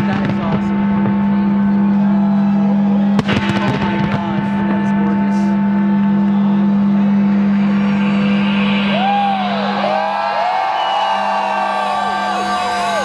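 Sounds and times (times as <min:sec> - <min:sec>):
fireworks bangs: 0:00.0 - 0:02.1, 0:03.1 - 0:08.9
loud low hum: 0:00.0 - 0:13.0.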